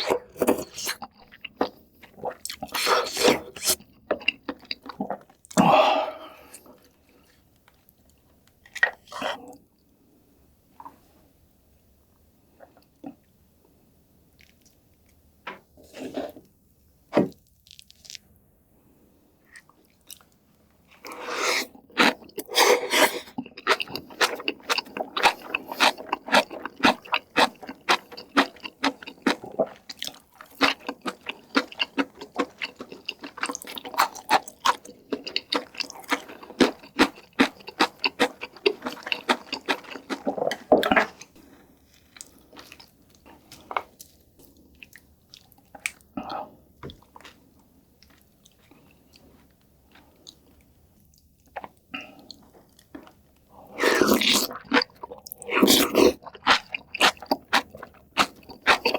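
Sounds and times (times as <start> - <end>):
crunchy chewing: 21.0 - 46.0, 51.4 - 58.9.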